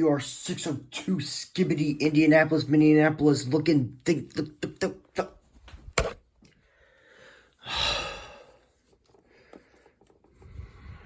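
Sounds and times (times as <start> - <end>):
man sighing: 7.6 - 8.6.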